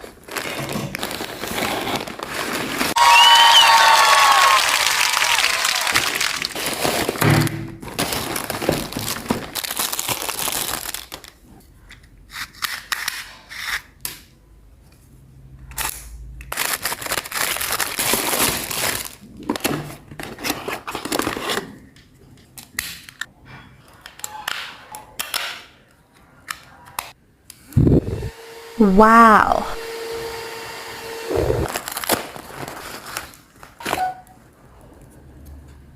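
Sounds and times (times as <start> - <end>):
plastic packaging crinkling: 0.0 - 3.0, 5.9 - 7.2, 7.8 - 11.5, 16.5 - 19.6, 31.7 - 34.0.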